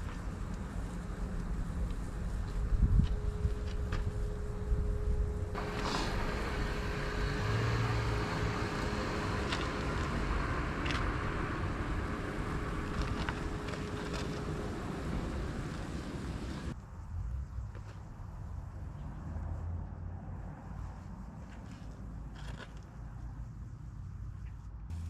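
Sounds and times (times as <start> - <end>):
steady engine rumble: 0.0 - 25.0
pressure washer spray hissing: 5.6 - 16.7.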